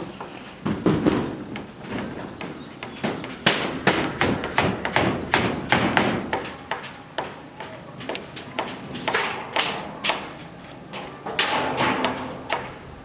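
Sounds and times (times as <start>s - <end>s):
hammer blows: 3.0s - 7.0s.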